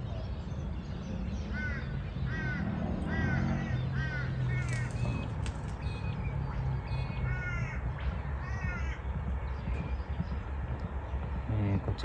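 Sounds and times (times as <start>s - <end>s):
bird giving harsh falling calls: 1.5s - 6.0s.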